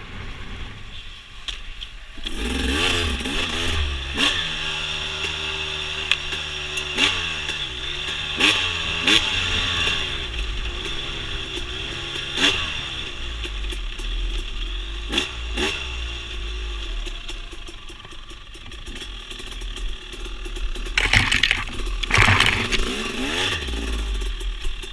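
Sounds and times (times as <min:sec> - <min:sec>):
dirt bike engine revving: 0:20.8 - 0:23.9.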